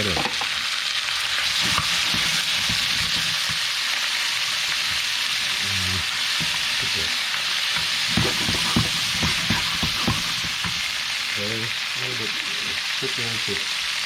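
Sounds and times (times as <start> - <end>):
food sizzling in a pan: 0.0 - 14.0
utensil knocking against pan: 1.6 - 3.6, 7.7 - 10.9.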